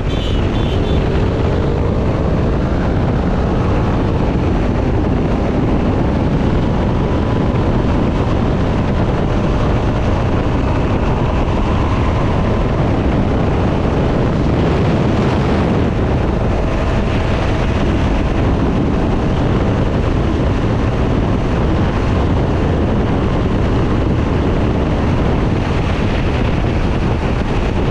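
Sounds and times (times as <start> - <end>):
vehicle engine droning: 0.0 - 27.9
wind noise on microphone: 0.0 - 27.9.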